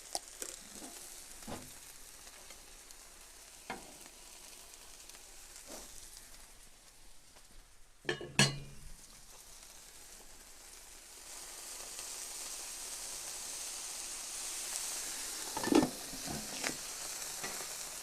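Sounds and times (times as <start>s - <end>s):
food sizzling on a griddle: 0.0s - 18.0s
metal clank: 8.1s - 8.9s, 15.6s - 16.6s.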